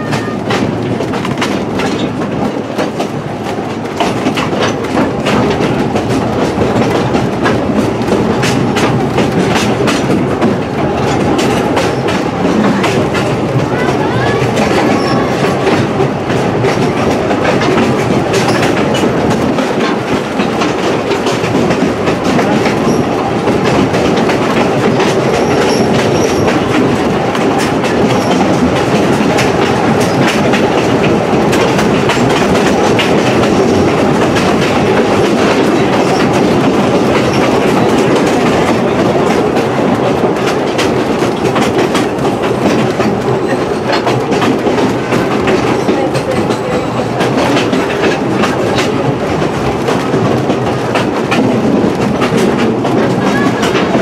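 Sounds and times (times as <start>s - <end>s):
train rumbling along track: 0.0s - 54.0s
wheels clicking on rails: 0.0s - 54.0s.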